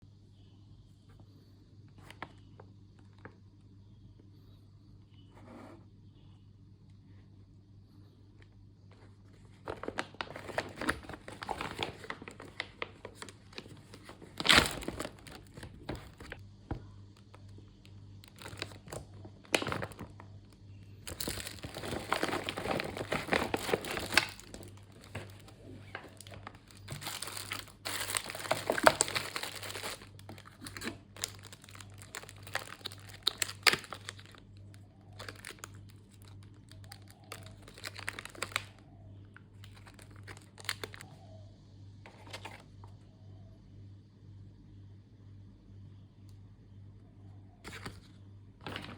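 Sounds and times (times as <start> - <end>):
faint steady hum: 0.0 - 48.9
plastic packaging crinkling: 9.4 - 16.4, 17.2 - 41.1.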